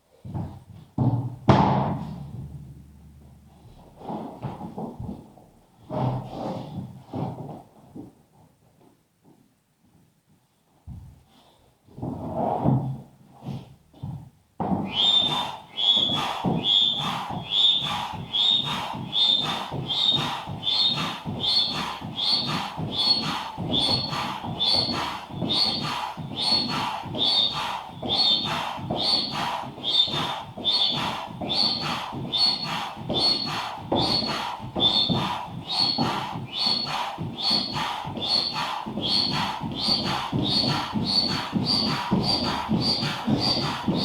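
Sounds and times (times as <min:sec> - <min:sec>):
manual air pump strokes: 0:14.7 - 0:44.0
pump squeak: 0:14.9 - 0:44.0.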